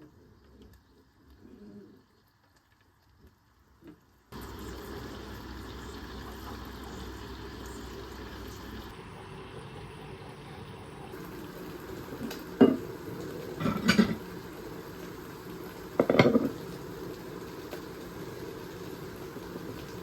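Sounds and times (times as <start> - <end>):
pot bubbling on the boil: 0.0 - 20.0
cookware clattering: 12.6 - 12.8, 13.5 - 14.2, 16.0 - 16.6.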